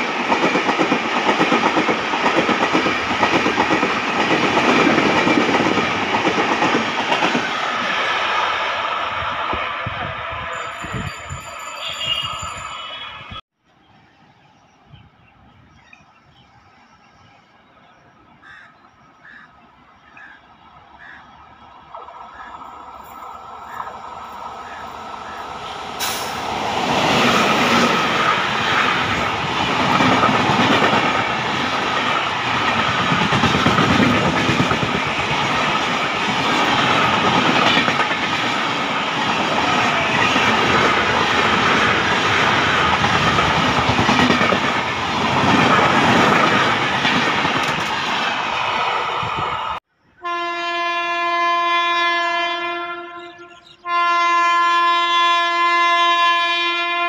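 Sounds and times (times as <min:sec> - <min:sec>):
train wheels rushing on rails: 0:00.0 - 0:13.4, 0:20.7 - 0:49.8
locomotive horn blast: 0:11.8 - 0:13.4, 0:50.2 - 0:57.0.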